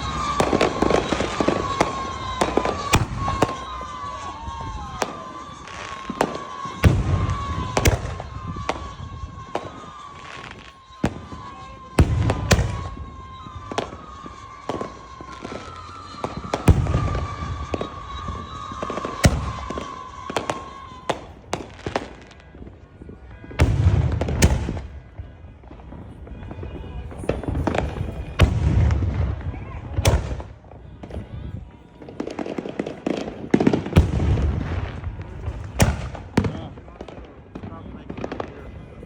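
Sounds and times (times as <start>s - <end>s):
firework whistles sliding down: 0.0s - 22.5s
deep firework booms: 0.0s - 39.0s
fireworks bangs: 0.0s - 39.0s.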